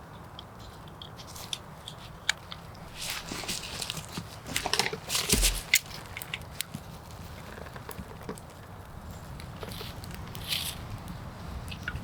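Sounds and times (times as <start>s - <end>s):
dog chewing a stick: 0.9s - 6.5s
dull thump: 4.5s - 5.8s.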